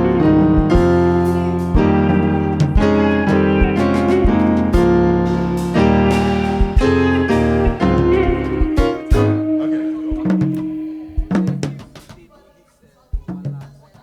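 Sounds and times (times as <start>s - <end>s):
live band playing: 0.0s - 12.2s
kick drum thumps: 0.4s - 5.2s, 5.8s - 12.3s.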